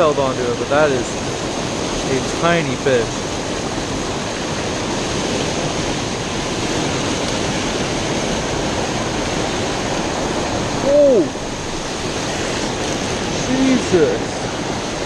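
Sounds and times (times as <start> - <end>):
water rushing over small waterfall: 0.0 - 15.0.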